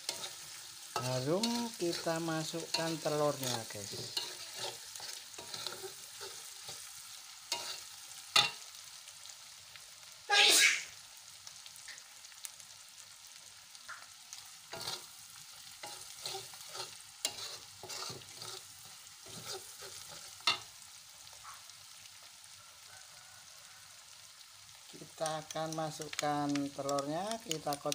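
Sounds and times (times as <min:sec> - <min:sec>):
metal spatula clinking and scraping: 0:00.0 - 0:06.9, 0:07.5 - 0:08.6, 0:14.7 - 0:15.1, 0:15.8 - 0:20.7
spice paste sizzling in oil: 0:00.0 - 0:27.9.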